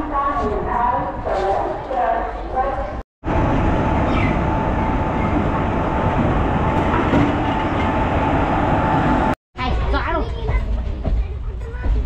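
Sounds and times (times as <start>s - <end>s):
train wheels rumbling on rails: 3.3s - 12.0s.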